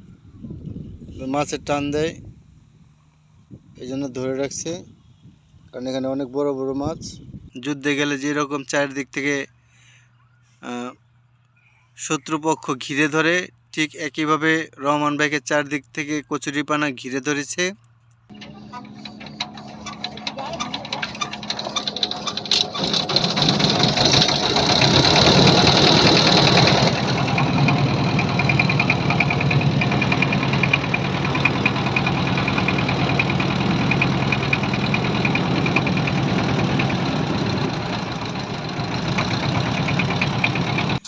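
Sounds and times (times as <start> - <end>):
boat engine knocking: 18.3 - 41.0.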